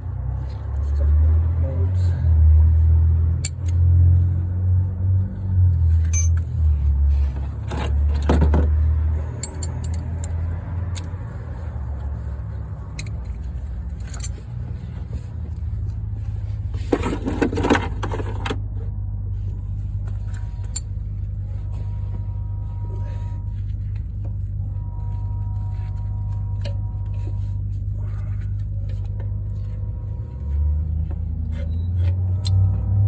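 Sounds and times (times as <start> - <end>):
low rumble: 0.0 - 33.0
metal tools clinking: 6.0 - 6.6, 9.2 - 10.4, 12.9 - 14.6.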